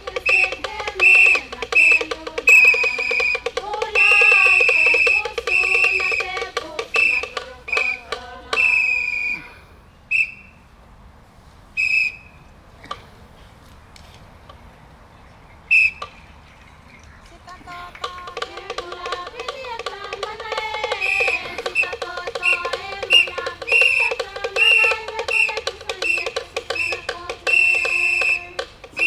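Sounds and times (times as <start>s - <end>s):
drumming: 0.0s - 9.5s, 17.7s - 29.0s
group chanting: 0.0s - 9.5s, 17.8s - 29.0s
whistle blasts: 0.0s - 10.6s, 11.8s - 12.5s, 15.7s - 16.2s, 20.6s - 29.0s.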